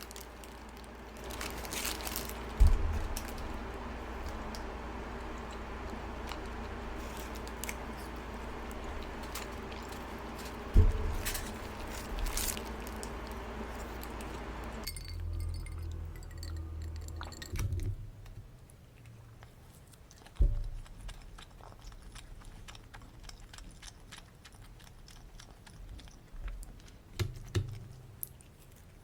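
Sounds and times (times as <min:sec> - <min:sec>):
packaging and tableware clinking: 0:00.0 - 0:04.6, 0:06.5 - 0:17.9
room hum: 0:00.0 - 0:29.0
heavy thump: 0:02.5 - 0:04.4, 0:08.8 - 0:12.7.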